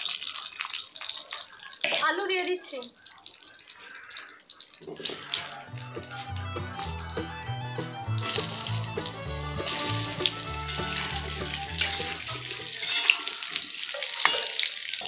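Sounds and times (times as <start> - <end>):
potatoes frying in hot oil: 0.0 - 7.4, 8.2 - 15.0
background music with bass line: 5.7 - 12.8.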